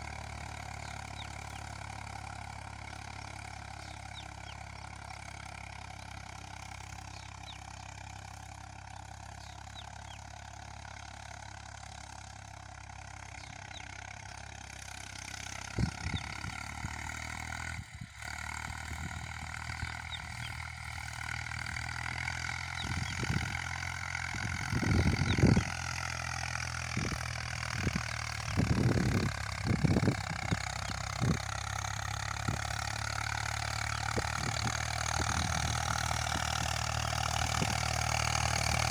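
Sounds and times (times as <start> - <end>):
tractor diesel engine rumbling: 0.0 - 38.9.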